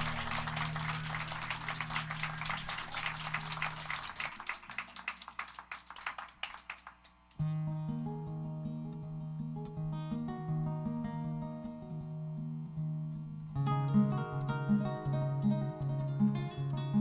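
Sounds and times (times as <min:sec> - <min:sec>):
live band with acoustic guitar: 0:00.0 - 0:04.8, 0:07.4 - 0:17.0
plucked guitar notes: 0:07.4 - 0:17.0.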